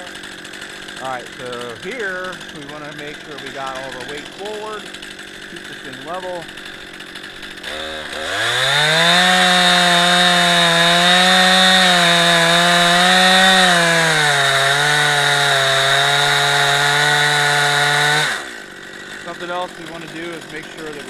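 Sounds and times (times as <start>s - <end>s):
chainsaw cutting through log: 0.0s - 21.0s.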